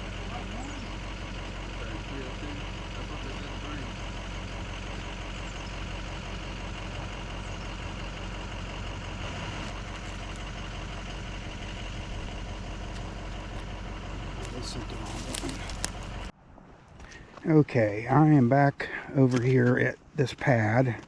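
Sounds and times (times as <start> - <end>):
heavy engine idling: 0.0 - 16.3.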